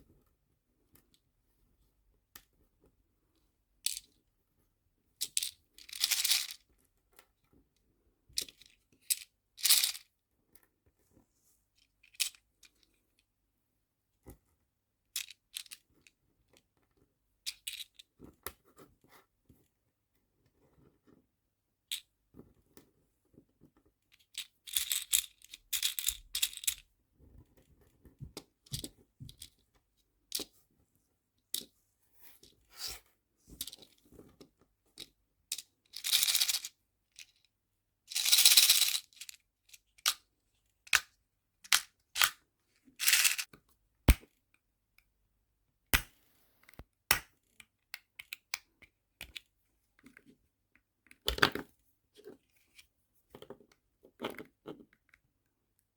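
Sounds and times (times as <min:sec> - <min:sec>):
rustling: 0:43.0 - 0:43.5.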